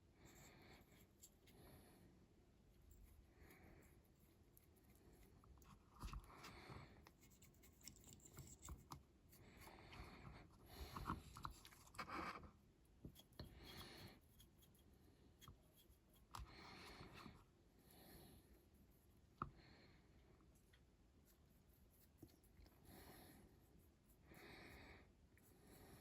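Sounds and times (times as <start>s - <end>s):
brush scratching: 3.9s - 9.0s.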